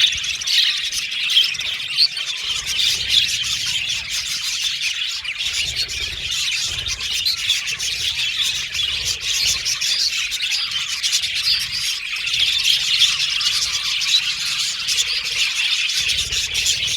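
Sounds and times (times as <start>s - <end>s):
budgerigars chirping and chattering: 0.0s - 16.9s.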